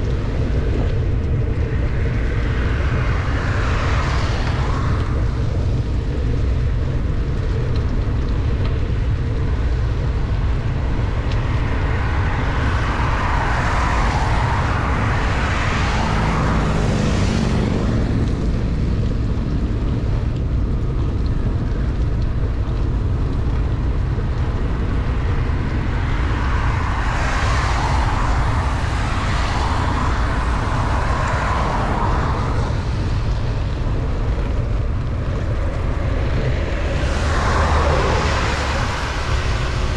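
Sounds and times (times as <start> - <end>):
vehicle tyres passing on wet road: 0.0 - 39.9
wind rumble on microphone: 0.0 - 39.9
hiss of wet road: 11.3 - 18.2, 25.3 - 33.8, 35.6 - 39.9.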